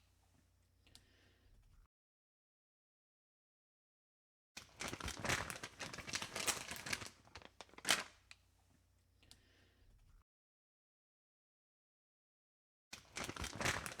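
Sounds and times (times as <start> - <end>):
dense rustling crackling noise: 4.8 - 8.1.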